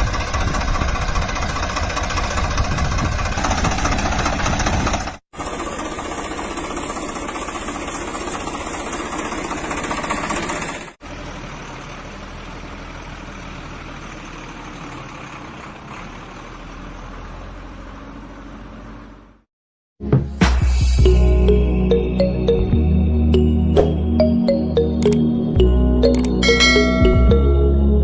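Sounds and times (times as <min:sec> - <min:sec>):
engine idling with knocking chug: 0:00.0 - 0:16.2.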